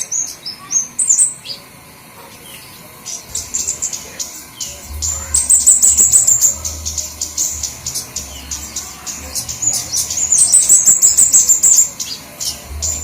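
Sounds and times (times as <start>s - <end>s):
birds chipping and trilling: 0.0s - 13.0s
low hum: 3.3s - 13.0s.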